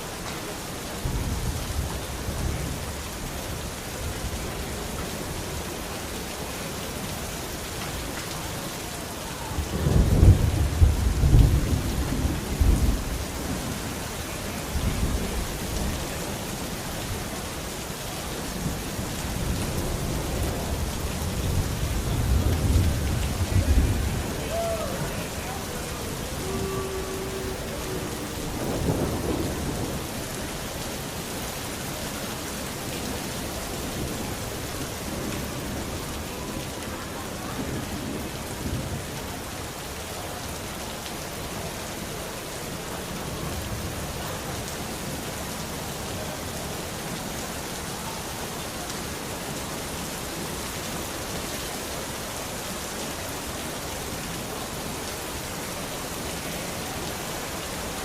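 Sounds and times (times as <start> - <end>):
heavy rain: 0.0 - 58.0
thunder rolling: 9.5 - 13.8, 20.0 - 31.1.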